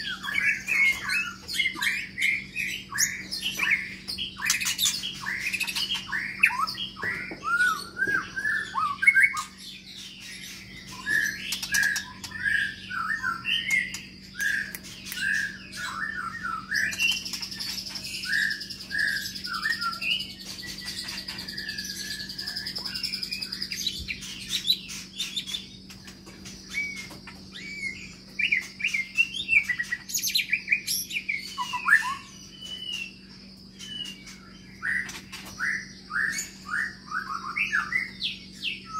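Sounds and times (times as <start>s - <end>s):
high continuous bird trill: 0.0s - 38.9s
bird singing whistled phrases: 10.6s - 25.7s, 26.7s - 38.9s.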